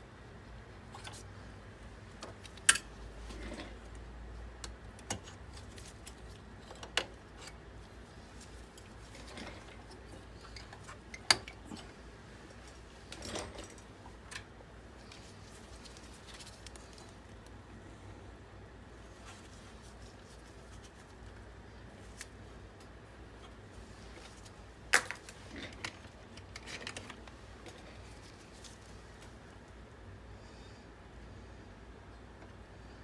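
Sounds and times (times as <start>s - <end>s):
low steady hum: 0.0s - 33.0s
soft rustling: 7.8s - 17.5s, 19.0s - 22.4s, 23.7s - 29.5s.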